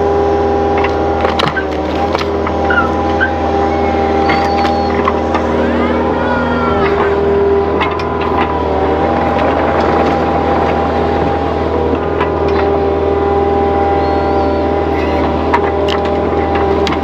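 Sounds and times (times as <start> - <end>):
earthmoving machine engine running: 0.0 - 17.0
machine whine: 0.0 - 17.0.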